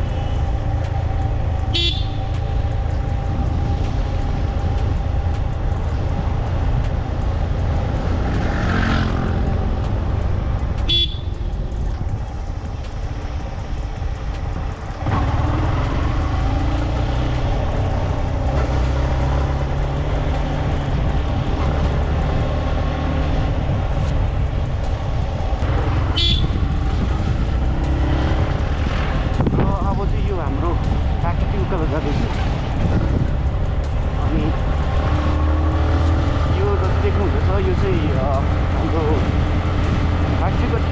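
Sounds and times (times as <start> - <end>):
motorcycle engine: 0.0 - 31.2
motorcycle horn toot: 1.7 - 2.2, 10.9 - 11.4, 26.1 - 26.6.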